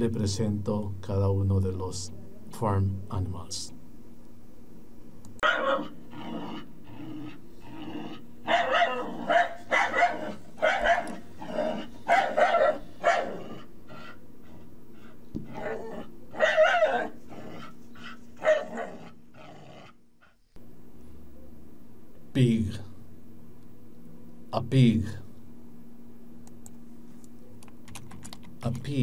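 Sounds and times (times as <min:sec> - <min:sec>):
dog barking: 0:05.4 - 0:06.0, 0:08.4 - 0:14.2, 0:15.5 - 0:17.2, 0:18.4 - 0:19.0.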